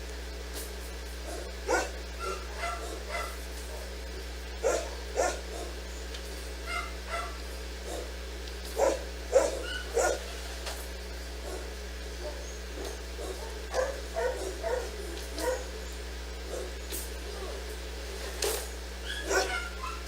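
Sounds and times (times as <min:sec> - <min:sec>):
steady low hum: 0:00.0 - 0:20.0
dog barking: 0:01.2 - 0:04.0, 0:04.6 - 0:05.8, 0:06.6 - 0:08.2, 0:08.8 - 0:10.4, 0:11.4 - 0:17.7, 0:19.0 - 0:20.0.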